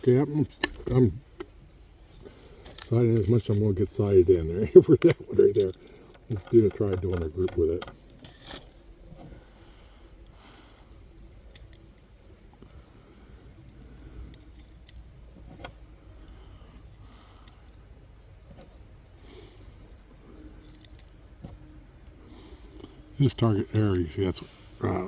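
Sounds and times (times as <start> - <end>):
insects chirring: 0.0 - 25.0
faint clicks: 11.5 - 12.9, 20.3 - 21.6.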